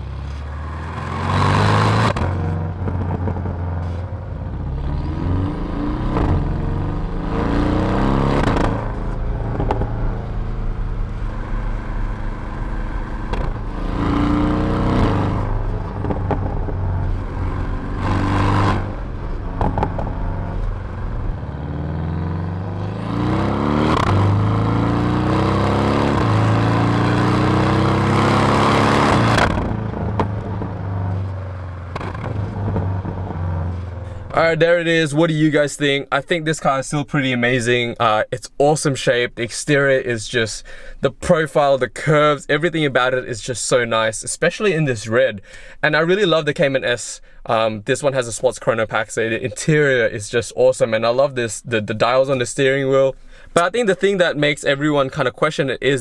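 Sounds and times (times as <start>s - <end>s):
car engine accelerating hard: 0.0s - 34.6s.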